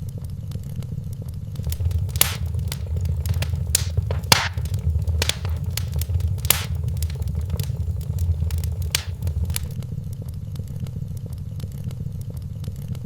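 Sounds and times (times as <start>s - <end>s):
wood fire crackling: 1.6s - 9.8s.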